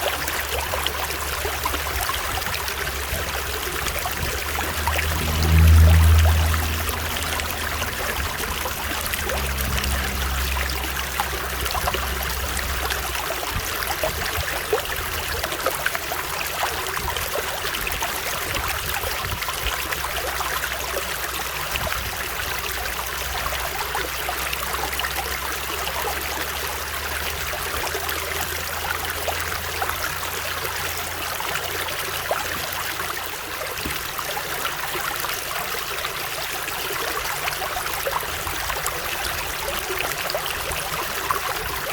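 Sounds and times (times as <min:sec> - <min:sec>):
stream water over rocks: 0:00.0 - 0:41.9
low rumble: 0:00.2 - 0:25.8.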